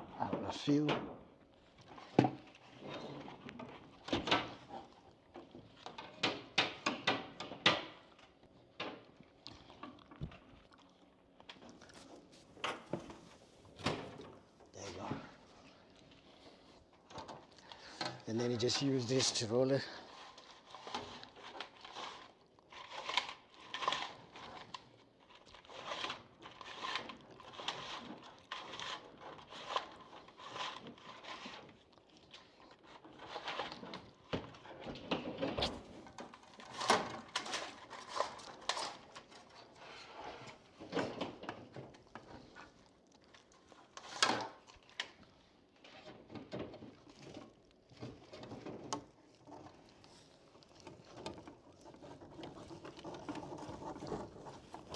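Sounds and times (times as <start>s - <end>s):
fish tape scraping and rattling: 18.1s - 32.1s, 32.8s - 42.8s, 43.8s - 45.2s, 45.8s - 54.9s.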